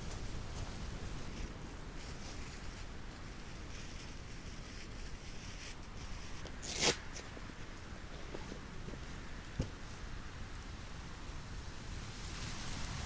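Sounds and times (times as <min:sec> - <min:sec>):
short loud rasp: 0:06.6 - 0:07.3.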